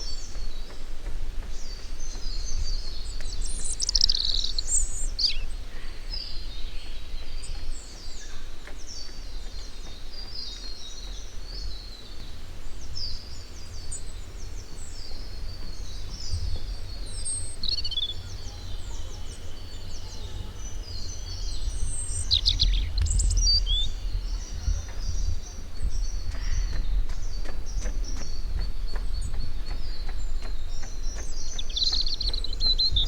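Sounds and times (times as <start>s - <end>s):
small birds chirping: 0.0s - 33.0s
low rumble: 12.6s - 31.2s.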